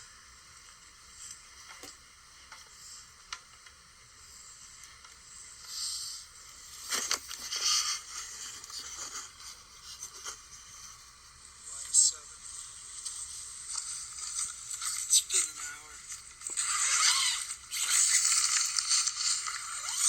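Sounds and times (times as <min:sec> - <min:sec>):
steady hiss: 0:00.0 - 0:20.0
rustling and scraping: 0:05.6 - 0:11.1.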